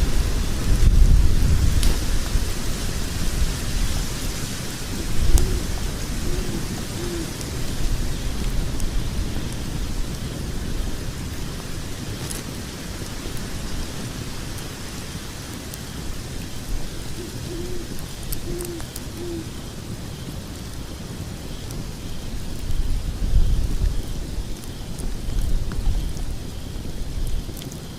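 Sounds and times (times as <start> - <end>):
log fire crackling: 0.0 - 27.9
low hoot-like tones: 4.9 - 7.4, 17.1 - 19.6.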